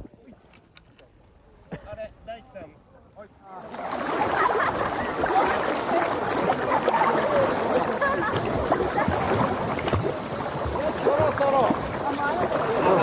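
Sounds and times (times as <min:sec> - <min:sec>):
faint voices calling: 0:03.6 - 0:13.0
whitewater rushing: 0:03.6 - 0:13.0.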